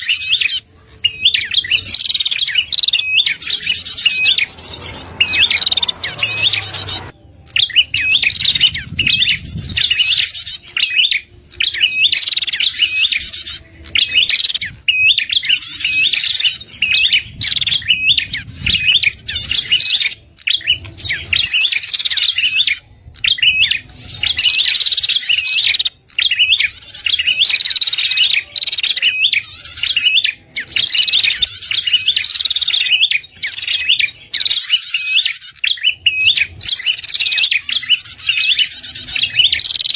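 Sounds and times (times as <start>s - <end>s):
bird chirping high twisting song: 0.0s - 17.3s, 26.2s - 39.9s.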